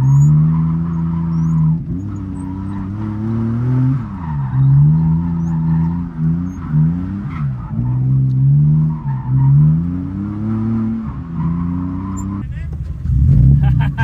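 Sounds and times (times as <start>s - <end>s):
car engine revving hard: 0.0s - 14.0s
tyres squealing: 11.3s - 14.0s.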